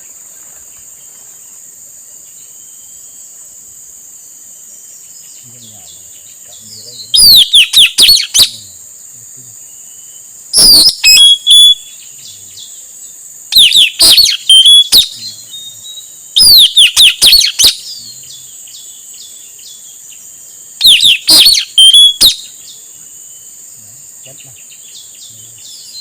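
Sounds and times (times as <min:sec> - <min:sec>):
parrot shrill chirps: 0:07.2 - 0:08.5, 0:10.6 - 0:11.9, 0:13.5 - 0:15.2, 0:16.4 - 0:17.8, 0:20.8 - 0:22.4.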